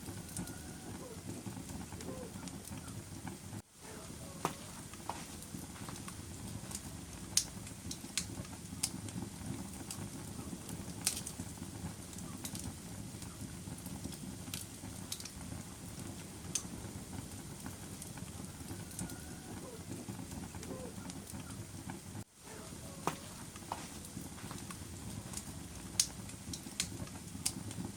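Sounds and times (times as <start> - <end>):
burning logs crackling and popping: 0.0 - 27.9
low rumble of flames: 0.0 - 27.9.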